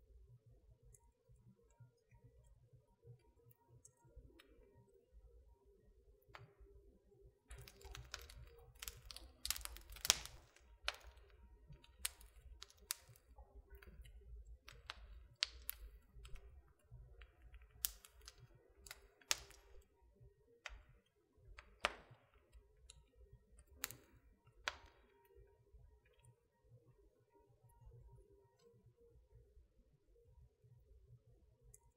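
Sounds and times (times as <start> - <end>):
fire crackling and popping: 7.5 - 20.0, 20.6 - 25.2.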